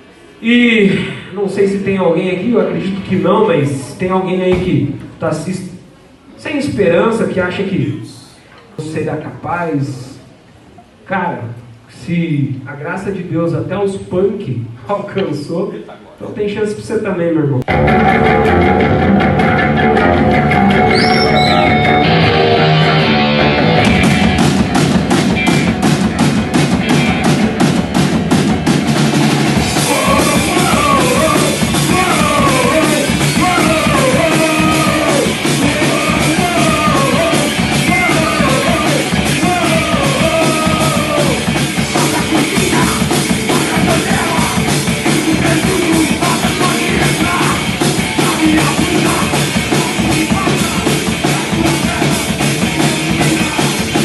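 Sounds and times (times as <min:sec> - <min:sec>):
punk rock band playing: 0:17.7 - 0:54.0
shouted vocals: 0:29.6 - 0:53.8.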